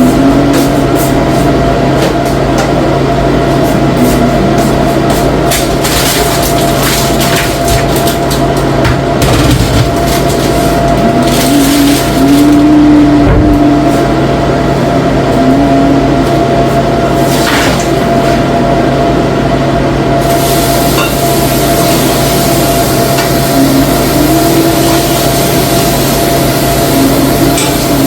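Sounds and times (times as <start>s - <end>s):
thin whine: 0.0s - 7.5s, 10.0s - 28.0s
low hum: 0.0s - 28.0s
loud hissing noise: 20.2s - 28.0s.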